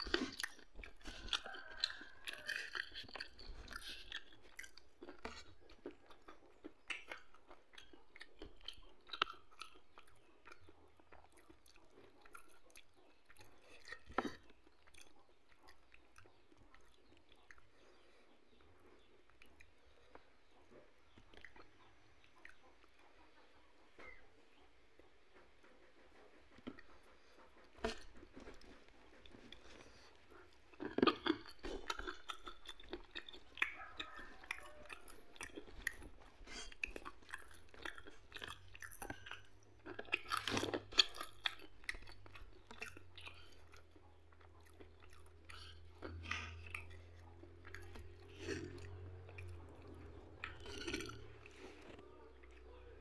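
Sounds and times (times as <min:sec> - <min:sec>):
chewing and crunching food: 0:00.0 - 0:53.0
wet mouth sounds: 0:26.6 - 0:52.6.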